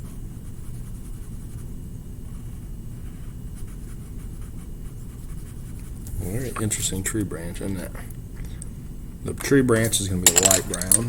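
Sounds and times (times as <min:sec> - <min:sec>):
pencil scribbling on paper: 0:00.0 - 0:06.0
steady low hum: 0:00.0 - 0:11.0.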